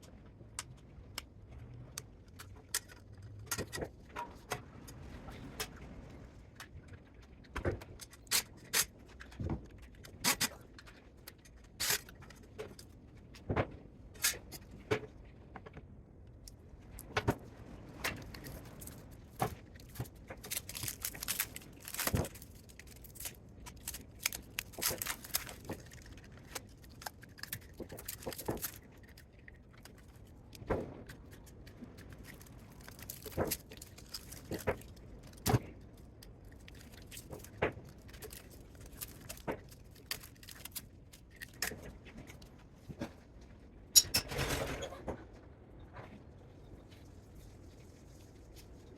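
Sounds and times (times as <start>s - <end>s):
hand tools and metal parts clanking: 44.0s - 44.6s.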